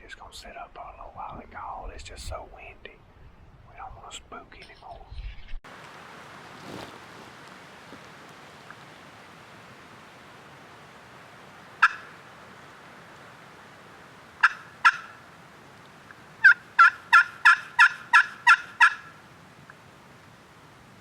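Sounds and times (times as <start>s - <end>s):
turkey call hen yelps: 11.8s - 12.2s, 14.4s - 15.2s, 16.4s - 19.2s.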